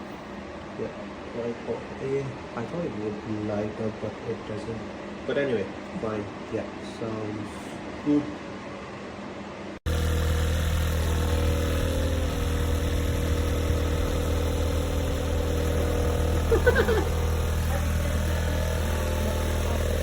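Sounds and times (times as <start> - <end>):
motor humming: 9.9 - 20.0.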